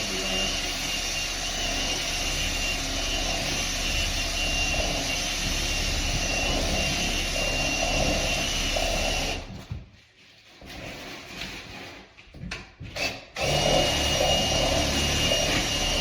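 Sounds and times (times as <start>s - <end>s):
power tool motor whining: 0.0s - 9.5s, 13.0s - 16.0s.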